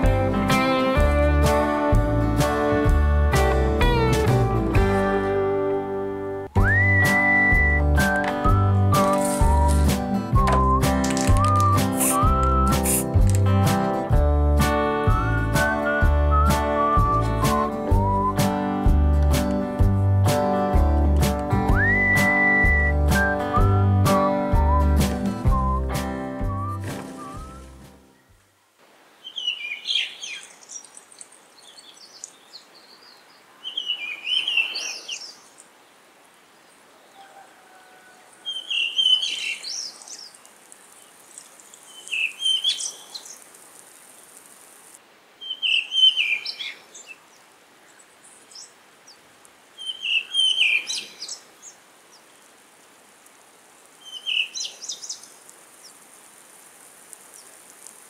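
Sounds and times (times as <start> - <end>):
faint steady hiss: 0.0 - 58.0
songbird singing rising phrase: 6.6 - 13.2, 38.4 - 40.4, 41.0 - 43.4, 45.4 - 49.2, 49.8 - 52.3, 54.0 - 56.0.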